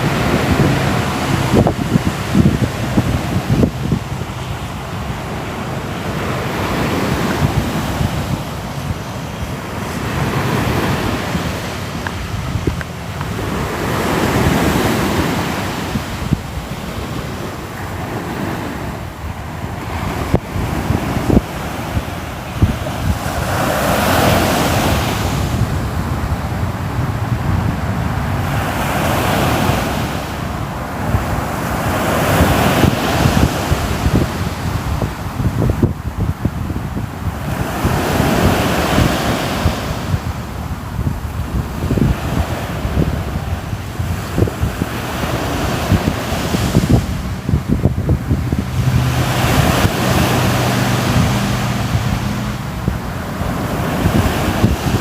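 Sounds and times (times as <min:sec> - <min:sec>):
steady low rumble: 0:00.0 - 0:28.7
ocean waves washing ashore: 0:00.0 - 0:55.0
wind buffeting microphone: 0:00.0 - 0:55.0.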